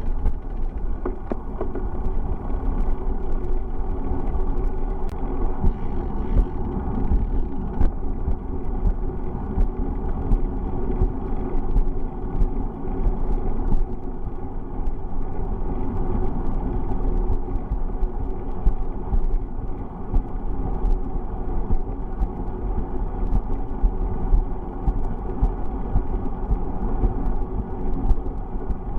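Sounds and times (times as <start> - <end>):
small clicks and rattles: 0.0 - 28.9
wind on microphone: 3.9 - 14.0.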